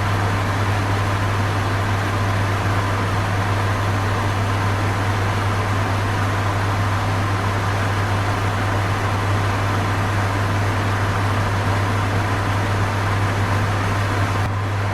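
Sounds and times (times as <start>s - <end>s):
electric fan air whoosh: 0.0s - 9.6s.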